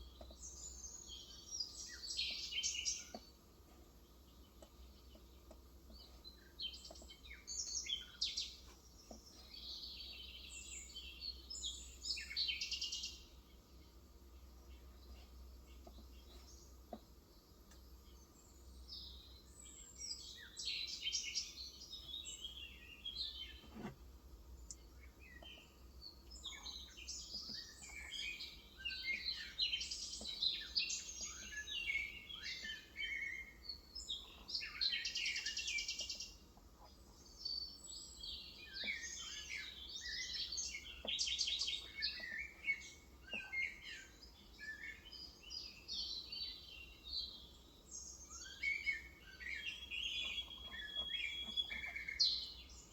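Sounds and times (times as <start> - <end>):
small birds chirping and trilling: 0.0 - 52.9
faint soft clicks: 17.6 - 17.9, 24.6 - 25.6.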